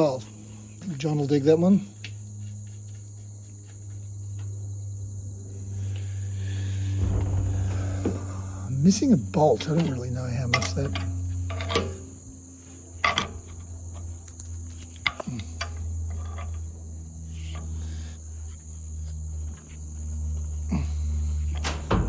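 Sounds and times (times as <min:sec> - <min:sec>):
crickets chirring: 0:00.0 - 0:22.0
low hum: 0:03.5 - 0:22.0
metal parts clicking and knocking: 0:10.5 - 0:12.0, 0:14.9 - 0:16.7.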